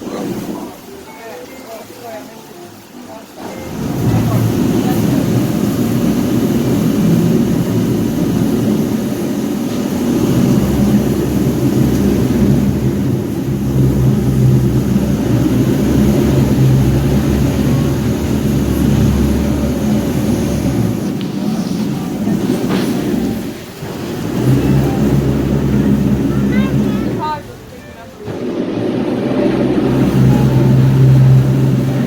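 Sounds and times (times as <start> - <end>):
boat engine rumbling: 0.0 - 32.0.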